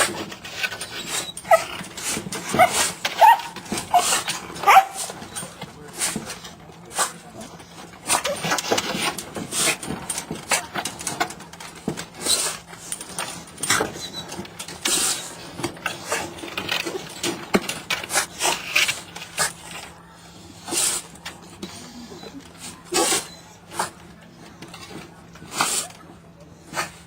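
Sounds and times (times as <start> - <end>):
dog sneezing: 21.8 - 23.9, 25.5 - 26.0.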